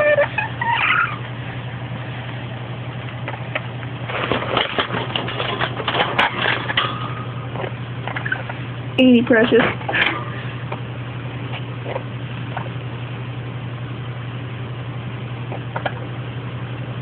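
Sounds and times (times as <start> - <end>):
parrot whistling: 0.0 - 1.2
low electrical hum: 0.0 - 17.0.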